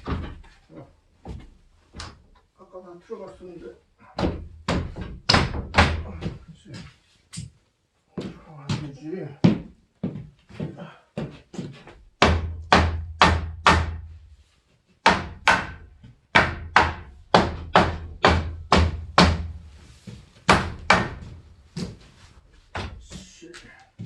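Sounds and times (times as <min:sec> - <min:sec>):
hammer blows on wooden frame: 0:04.2 - 0:06.4, 0:12.2 - 0:14.2, 0:15.0 - 0:19.7, 0:20.4 - 0:21.9.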